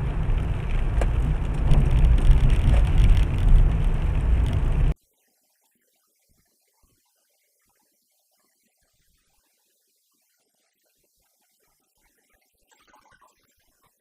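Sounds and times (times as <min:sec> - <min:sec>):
moving vehicle rumble: 0:00.0 - 0:05.0.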